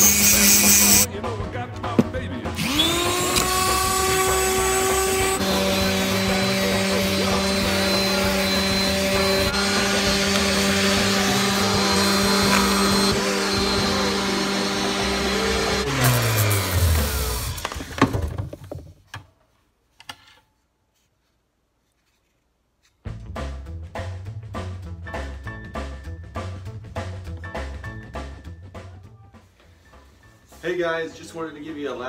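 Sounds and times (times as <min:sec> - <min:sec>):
electric sander running: 0:02.6 - 0:17.8.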